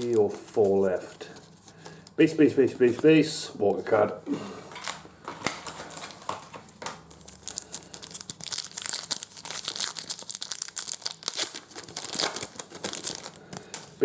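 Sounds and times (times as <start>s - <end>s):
wrapper tearing and crinkling: 0.0s - 0.3s, 4.8s - 14.0s.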